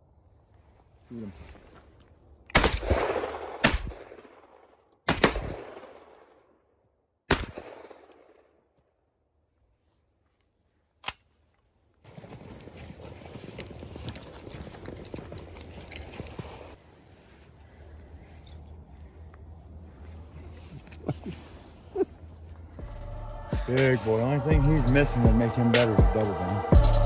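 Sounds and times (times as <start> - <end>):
shotgun shots with echo: 2.6 - 4.5, 5.1 - 6.2, 7.3 - 8.4
crackling rustle: 8.8 - 22.8.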